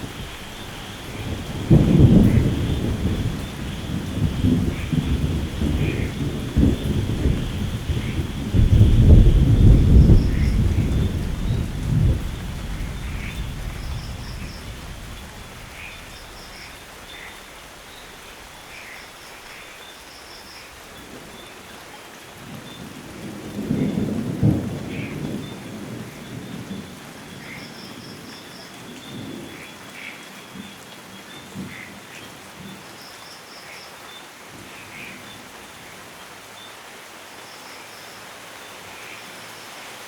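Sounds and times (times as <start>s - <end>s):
thunder rumbling: 0.0s - 18.8s
steady rain: 0.0s - 40.0s
sharp thunder crack: 1.1s - 16.7s.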